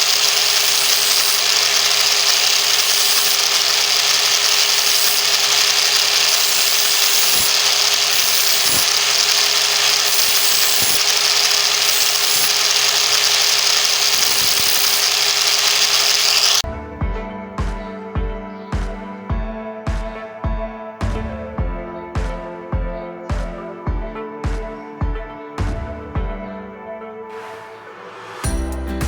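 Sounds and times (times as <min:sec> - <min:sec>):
angle grinder sharpening knife: 0:00.0 - 0:16.6.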